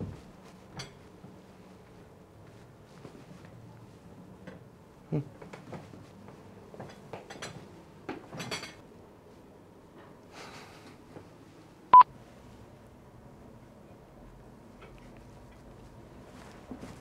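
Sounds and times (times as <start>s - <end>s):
dishes and cutlery clinking: 6.8s - 7.6s, 8.2s - 8.8s.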